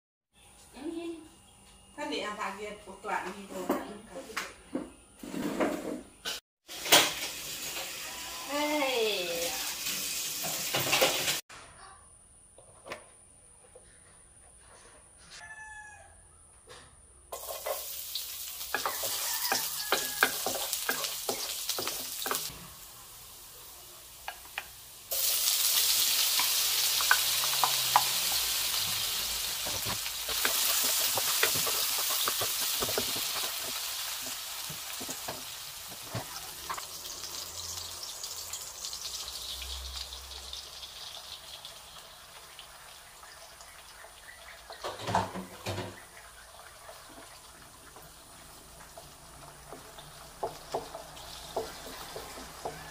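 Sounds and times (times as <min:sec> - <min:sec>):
oil sizzling in a wok: 0:06.6 - 0:11.4, 0:17.3 - 0:52.9
distant rooster crowing: 0:15.3 - 0:16.8, 0:18.8 - 0:20.7, 0:51.9 - 0:52.9.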